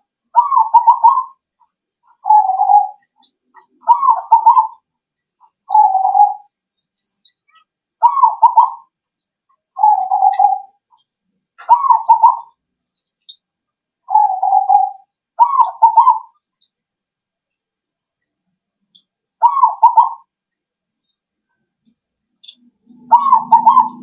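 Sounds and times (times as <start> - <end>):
dove cooing: 0.4 - 1.4, 2.1 - 4.8, 5.7 - 6.5, 8.0 - 8.9, 9.8 - 10.8, 11.6 - 12.5, 14.1 - 16.4, 19.4 - 20.3, 22.8 - 24.0.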